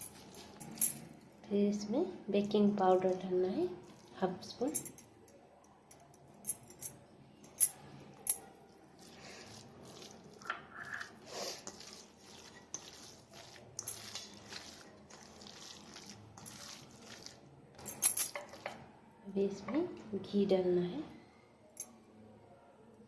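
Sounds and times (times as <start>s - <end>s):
spoon scraping and rustling: 0.0s - 1.1s, 8.7s - 18.8s.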